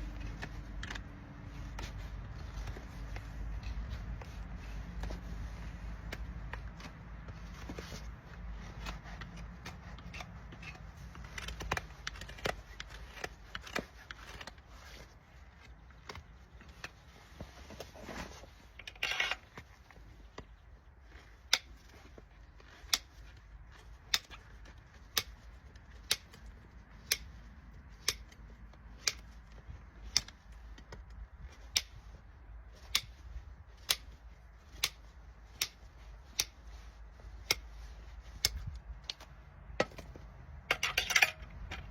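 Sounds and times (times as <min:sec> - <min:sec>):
tool scraping hoof: 0:00.0 - 0:41.9
hand tools clicking on hoof: 0:06.0 - 0:14.7.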